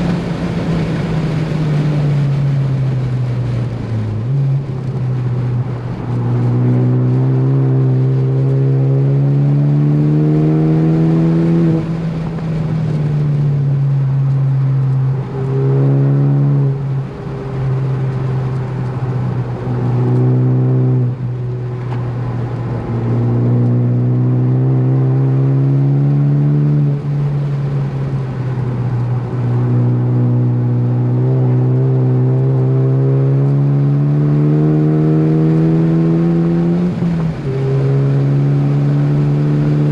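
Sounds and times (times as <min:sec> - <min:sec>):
car engine at full throttle: 0:00.0 - 0:39.9.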